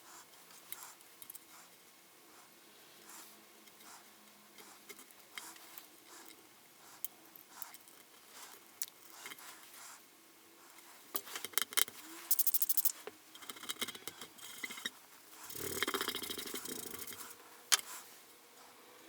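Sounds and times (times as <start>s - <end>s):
fast run of even clicks: 12.3s - 12.9s.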